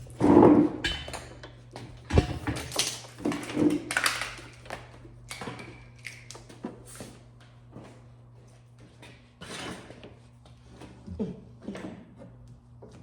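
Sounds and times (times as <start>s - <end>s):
hard objects knocking and clicking: 1.9s - 4.5s.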